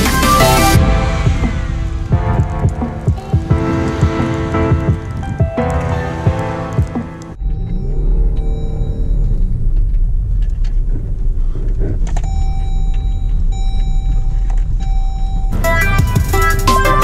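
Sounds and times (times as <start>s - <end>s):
steady high tone: 0.0s - 10.2s
engine running under load: 7.2s - 15.7s.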